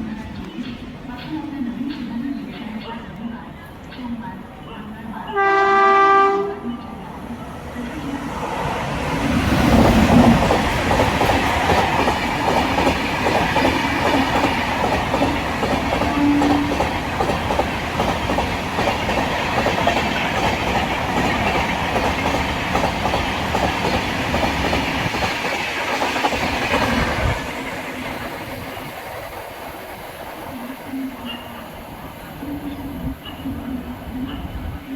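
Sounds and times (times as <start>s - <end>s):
express train rumble: 0.0s - 34.9s.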